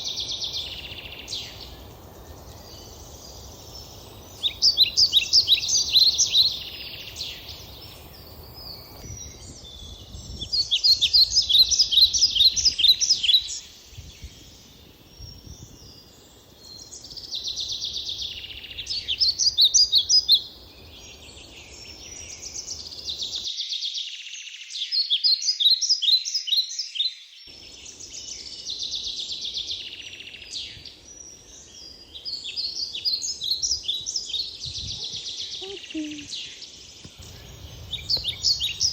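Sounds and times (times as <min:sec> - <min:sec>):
songbirds singing: 0:00.0 - 0:38.9
low rumble: 0:37.2 - 0:38.9.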